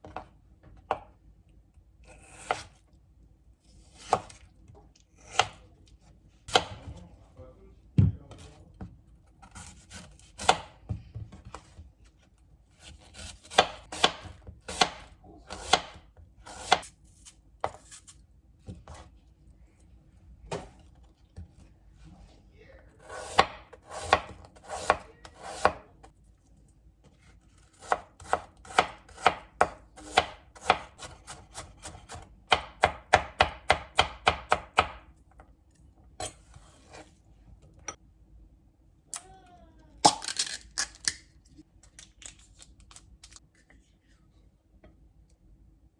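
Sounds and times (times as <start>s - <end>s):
knife chopping on cutting board: 2.1s - 2.8s, 3.9s - 4.4s, 5.2s - 5.6s, 6.5s - 7.0s, 9.4s - 11.6s, 12.8s - 16.9s, 18.6s - 19.1s, 23.0s - 25.8s, 27.7s - 35.1s.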